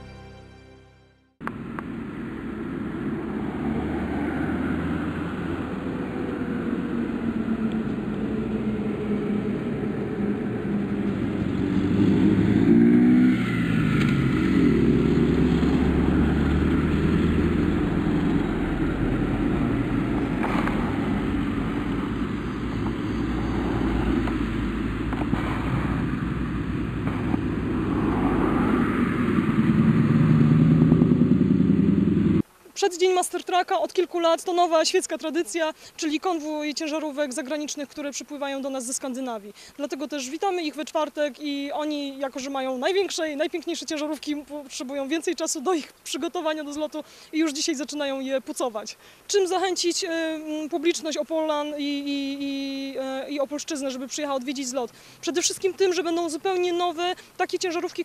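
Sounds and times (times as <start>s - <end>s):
diesel trucks driving past: 0.0s - 32.4s.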